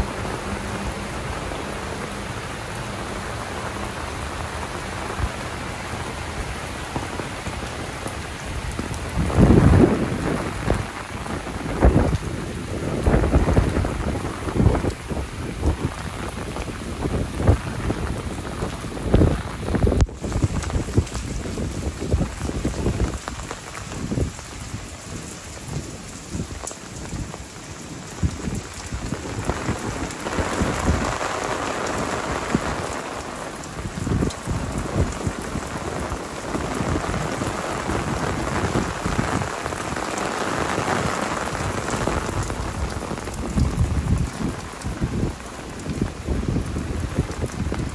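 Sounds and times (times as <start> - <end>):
heavy rain on paving and glass: 0.0 - 47.9.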